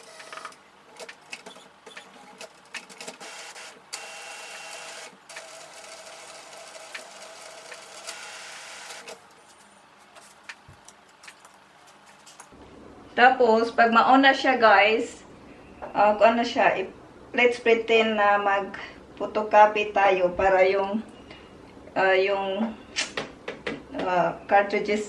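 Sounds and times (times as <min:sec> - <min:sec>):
printer mechanism whirring: 0:00.0 - 0:11.5.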